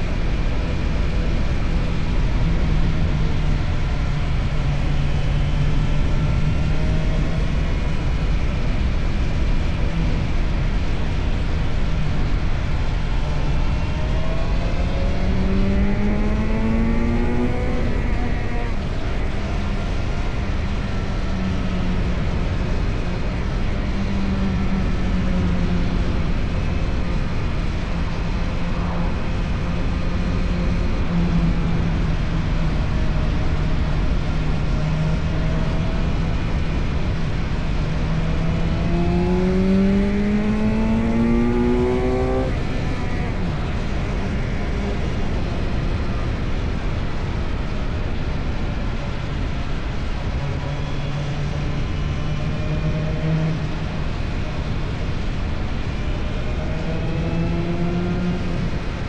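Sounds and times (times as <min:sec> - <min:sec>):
heavy wind rush: 0:00.0 - 0:24.0, 0:35.3 - 0:50.7
motorcycle engine accelerating: 0:00.1 - 0:59.0.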